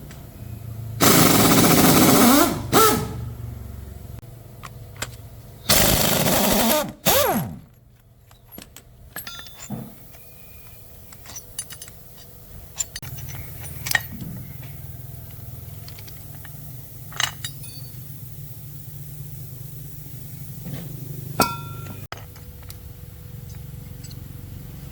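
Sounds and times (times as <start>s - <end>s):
metalworking tool bursts: 5.7s - 7.8s.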